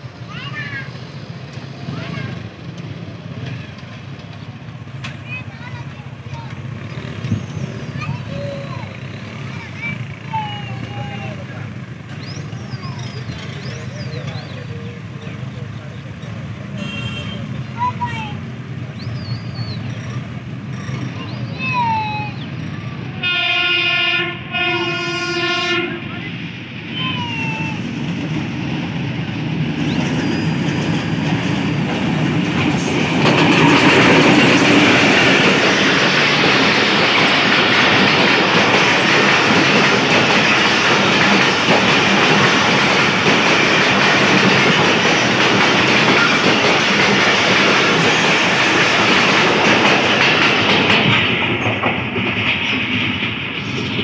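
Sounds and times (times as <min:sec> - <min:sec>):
locomotive rumbling past: 0:00.0 - 0:54.0
wheels clattering over rail joints: 0:00.3 - 0:16.7, 0:27.9 - 0:54.0
train horn: 0:16.8 - 0:17.5, 0:23.2 - 0:26.1.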